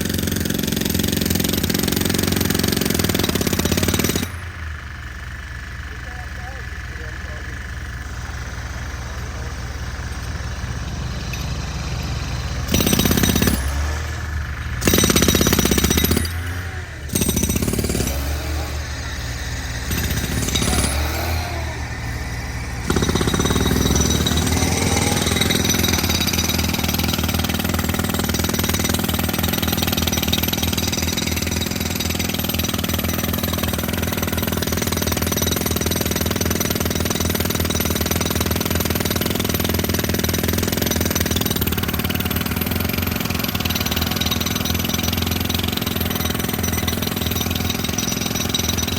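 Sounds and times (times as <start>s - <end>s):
machine pounding rhythmically: 0.0s - 48.9s.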